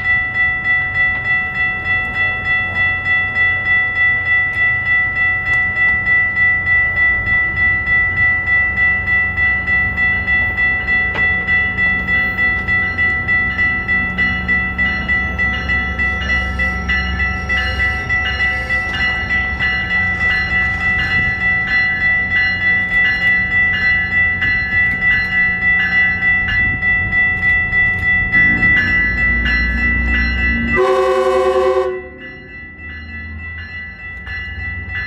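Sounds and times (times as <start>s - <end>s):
low rumble of train: 0.0s - 35.0s
railroad bell ringing: 0.0s - 35.0s
train horn chord: 30.8s - 32.5s.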